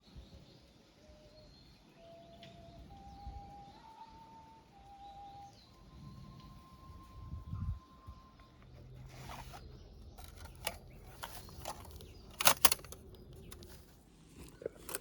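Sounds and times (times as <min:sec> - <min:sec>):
handling scrapes and clicks: 0:08.4 - 0:15.0.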